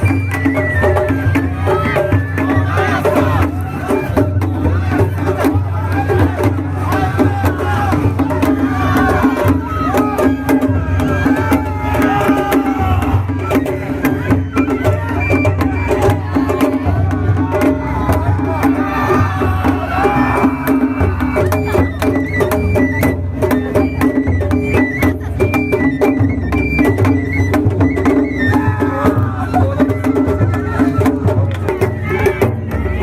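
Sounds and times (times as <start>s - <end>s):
drums: 0.0s - 33.0s
people's voices: 1.1s - 22.1s, 28.4s - 33.0s.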